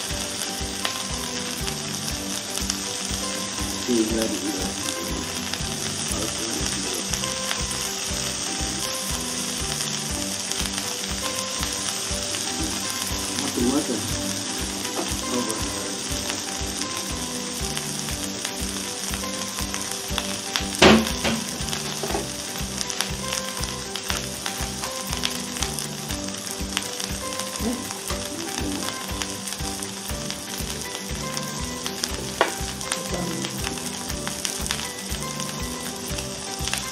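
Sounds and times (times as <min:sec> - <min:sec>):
potatoes sizzling in frying pan: 0:00.0 - 0:36.9
sharp knock: 0:20.8 - 0:22.2.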